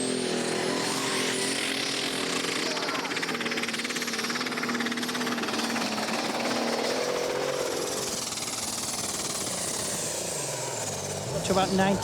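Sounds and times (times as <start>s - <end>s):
diesel engine running flat out: 0.0s - 12.0s.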